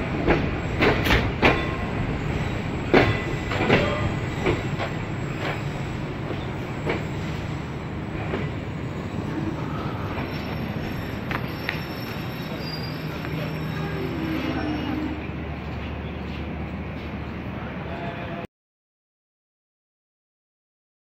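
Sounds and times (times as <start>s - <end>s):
train rumble: 0.0s - 18.4s
faint wheel squeal: 9.4s - 15.3s.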